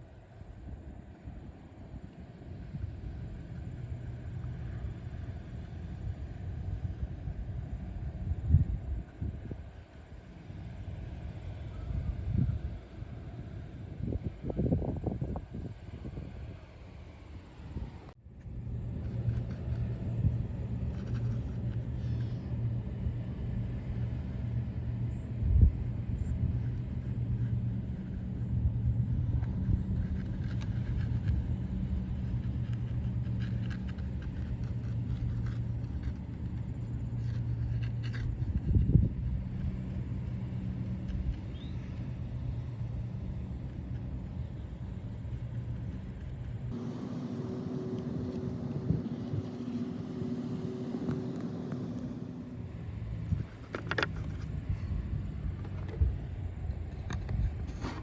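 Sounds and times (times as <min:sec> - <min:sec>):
low engine hum: 0:00.0 - 0:58.0.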